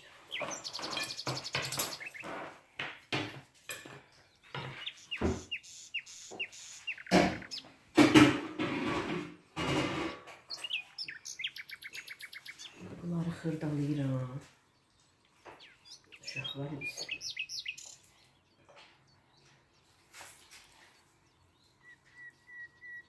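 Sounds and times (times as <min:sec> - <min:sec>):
small bird chirping: 0:00.0 - 0:02.6, 0:03.8 - 0:07.9, 0:10.0 - 0:23.0
dishes clattering: 0:00.3 - 0:05.4, 0:07.0 - 0:10.8.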